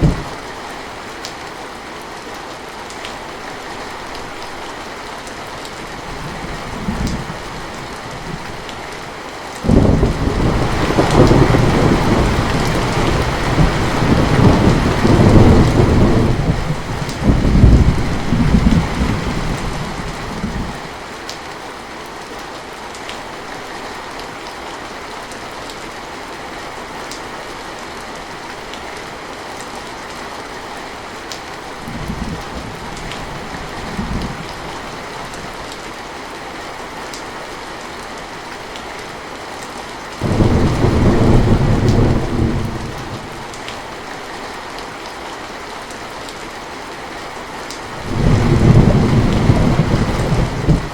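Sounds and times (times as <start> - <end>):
rolling thunder rumble: 0.0 - 0.4, 9.6 - 20.8, 40.2 - 43.6, 48.0 - 50.9
heavy rain: 0.0 - 50.9.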